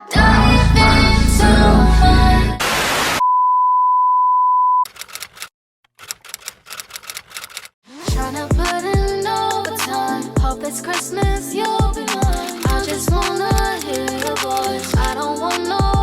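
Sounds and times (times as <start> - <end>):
music: 0.0 - 2.6, 8.0 - 16.0
deep falling bass drops: 0.2 - 2.6
crackling clicks: 4.9 - 7.8.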